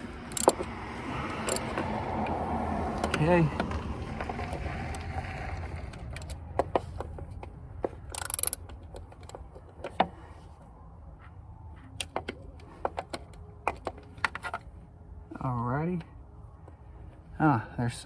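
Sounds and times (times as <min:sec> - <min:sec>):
hand tools clicking and tapping: 0:00.3 - 0:00.7, 0:01.5 - 0:01.7, 0:08.1 - 0:09.4.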